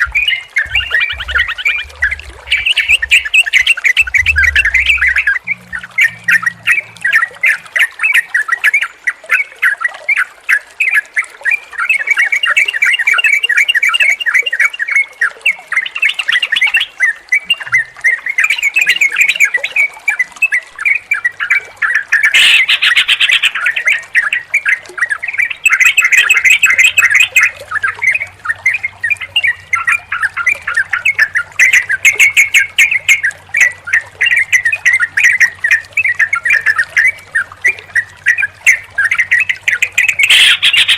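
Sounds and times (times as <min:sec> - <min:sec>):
bulbuls chattering and calling: 0:00.0 - 0:07.6, 0:22.2 - 0:24.4, 0:25.4 - 0:40.9
faint low hum: 0:00.0 - 0:07.8.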